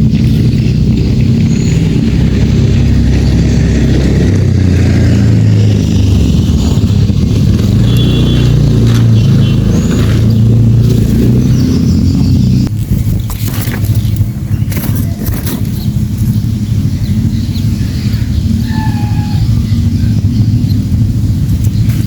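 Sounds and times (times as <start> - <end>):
motor engine running: 0.0 - 22.0
faint high bird chirps: 16.9 - 21.0.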